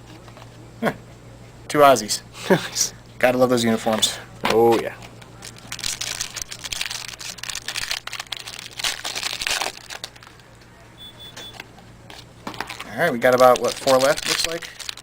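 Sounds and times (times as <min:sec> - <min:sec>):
cards being handled: 0:03.7 - 0:10.5, 0:11.4 - 0:15.0
foil wrapper crinkling: 0:03.7 - 0:10.6, 0:11.6 - 0:15.0.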